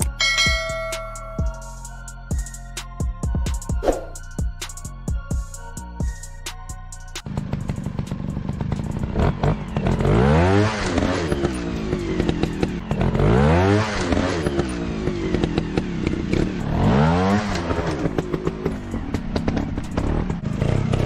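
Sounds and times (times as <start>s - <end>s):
motorbike engine revving: 7.2s - 21.0s.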